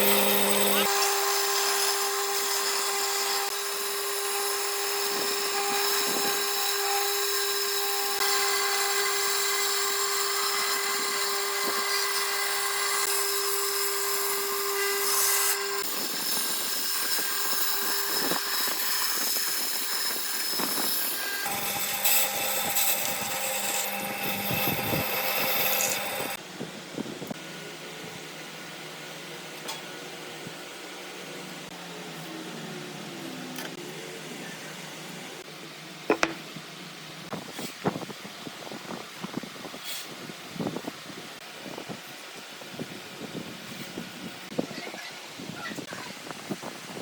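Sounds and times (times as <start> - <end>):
power tools whining on wood: 0.0 - 26.4.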